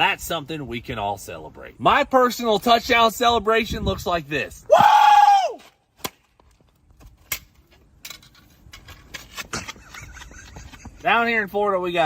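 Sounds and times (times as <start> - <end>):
person shouting woo: 4.7 - 5.6.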